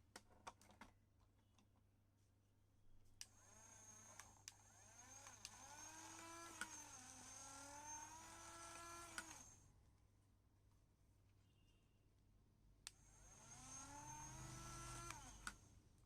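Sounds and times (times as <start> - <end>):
toy gear motor whining: 3.4 - 9.6, 13.0 - 15.6
sharp clicks: 8.7 - 9.4.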